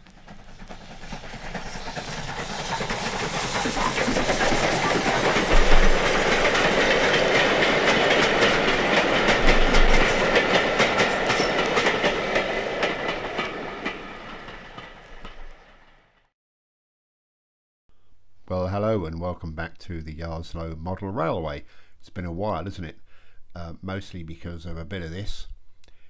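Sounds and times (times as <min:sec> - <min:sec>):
train wheels clicking over rail joints: 0:00.0 - 0:16.0.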